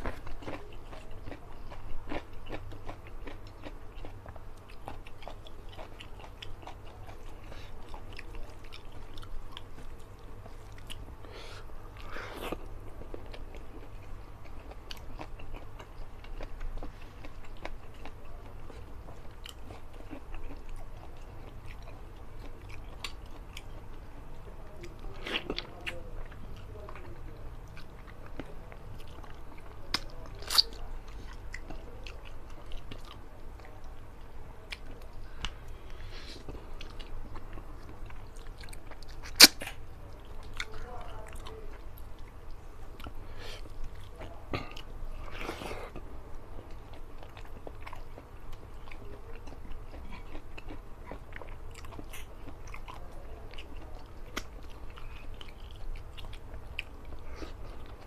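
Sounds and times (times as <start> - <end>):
low steady hum: 0.0 - 58.0
person chewing food: 0.0 - 58.0.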